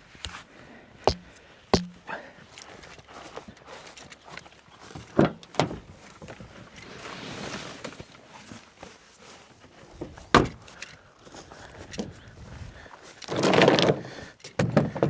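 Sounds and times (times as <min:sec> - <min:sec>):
sharp knocks: 0:01.1 - 0:02.0.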